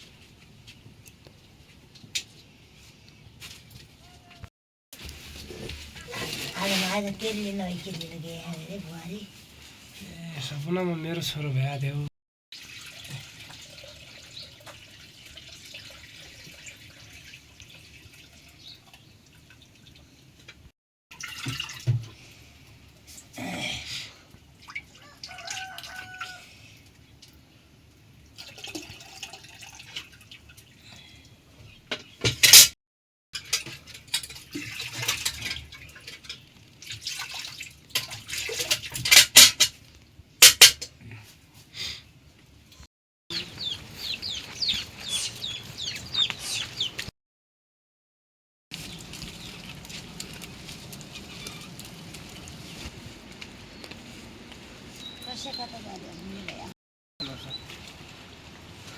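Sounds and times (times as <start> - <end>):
dripping water: 12.6 - 23.2, 24.3 - 31.3, 33.4 - 39.2, 48.7 - 52.7
rain: 48.8 - 54.9, 57.6 - 58.9.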